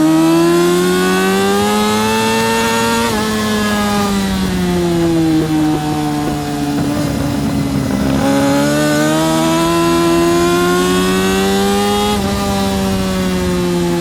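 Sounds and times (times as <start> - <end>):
motorcycle engine accelerating: 0.0 - 14.0
wind hiss: 0.2 - 14.0.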